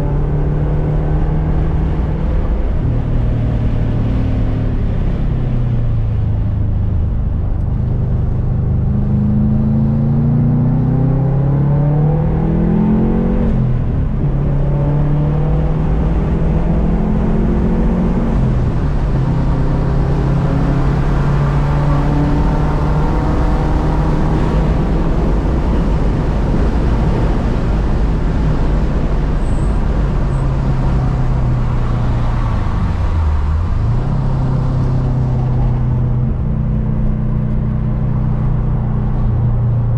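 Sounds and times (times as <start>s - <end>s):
turbocharged car engine revving: 8.5s - 39.9s.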